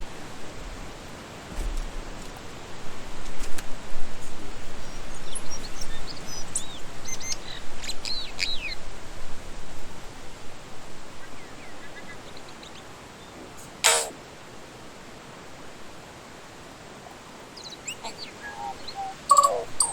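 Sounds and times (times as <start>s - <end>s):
steady rushing hiss: 0.0s - 19.9s
bird calling with whistles and clicks: 5.2s - 8.8s, 13.8s - 14.2s, 17.6s - 19.9s.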